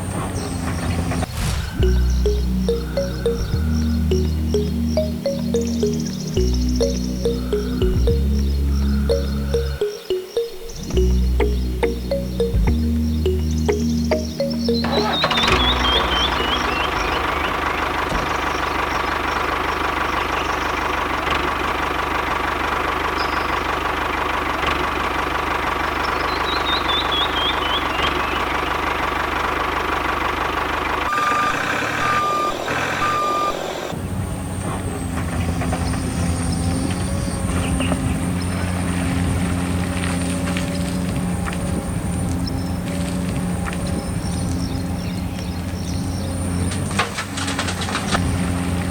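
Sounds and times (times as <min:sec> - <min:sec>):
falling chirps: 0:01.3 - 0:17.8
short beeps: 0:01.7 - 0:16.7
engine with thin high whistle: 0:31.1 - 0:34.0.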